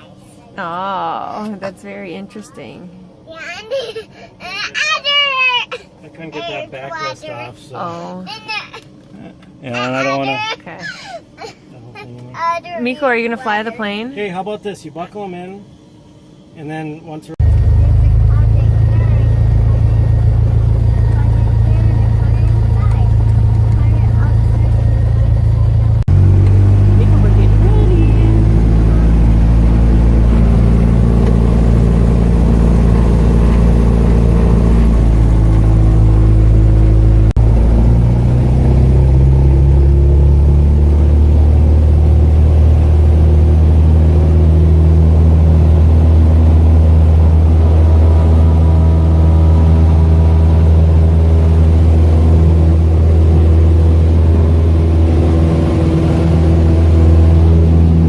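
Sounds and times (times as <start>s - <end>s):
propeller airplane engine from cabin: 0.0s - 58.0s.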